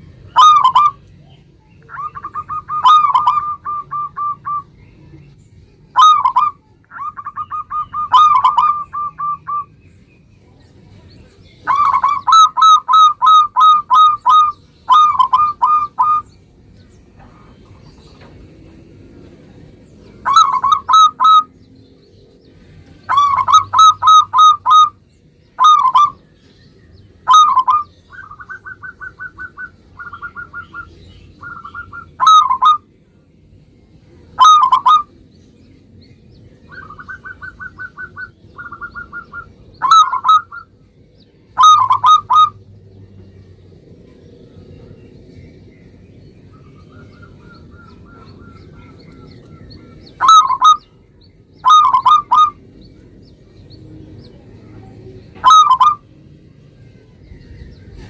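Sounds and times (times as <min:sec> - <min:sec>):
dove cooing: 0:00.4 - 0:01.0, 0:01.9 - 0:04.7, 0:06.0 - 0:09.7, 0:11.6 - 0:16.3, 0:20.2 - 0:21.5, 0:23.1 - 0:25.0, 0:25.6 - 0:26.2, 0:27.2 - 0:32.8, 0:34.4 - 0:35.1, 0:36.7 - 0:40.7, 0:41.6 - 0:42.6, 0:46.6 - 0:50.9, 0:51.6 - 0:52.8, 0:55.4 - 0:56.0.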